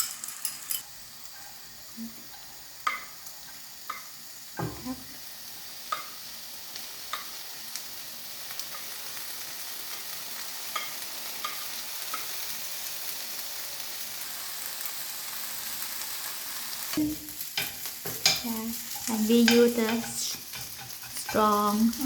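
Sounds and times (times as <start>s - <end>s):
eggs sizzling in a pan: 0.0s - 22.0s
utensil tapping and scraping pan: 17.5s - 22.0s.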